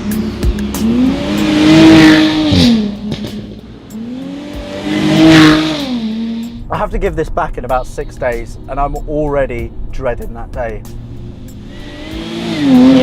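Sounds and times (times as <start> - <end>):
car exhaust revving: 0.0 - 6.7, 11.0 - 13.0.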